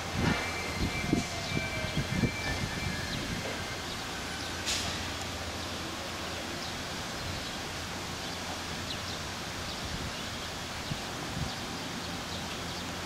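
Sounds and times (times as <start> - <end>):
distant train low rumble: 0.0 - 13.0
outdoor noise: 0.0 - 13.0
brief hiss: 4.6 - 5.3.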